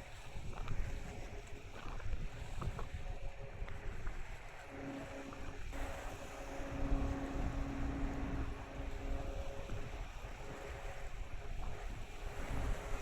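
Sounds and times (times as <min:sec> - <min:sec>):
wind rumbling on microphone: 0:00.0 - 0:13.0
ship engines humming: 0:03.0 - 0:13.0.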